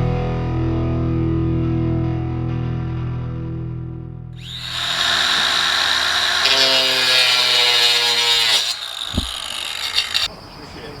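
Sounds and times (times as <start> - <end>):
power tool motor whining: 4.4 - 10.3.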